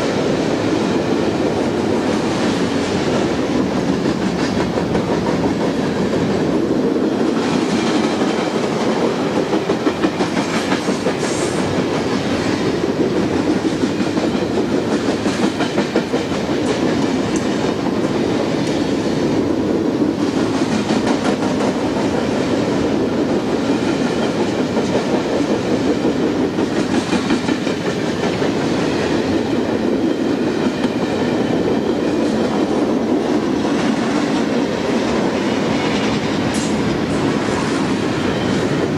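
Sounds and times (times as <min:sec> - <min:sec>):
train rumbling past: 0:00.0 - 0:38.9.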